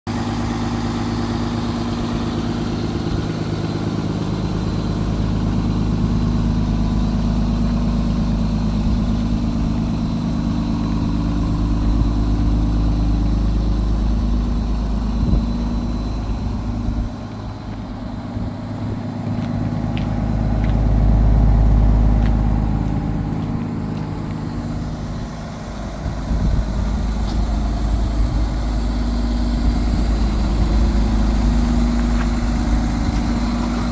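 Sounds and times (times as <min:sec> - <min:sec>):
truck engine idling: 0:00.1 - 0:33.9.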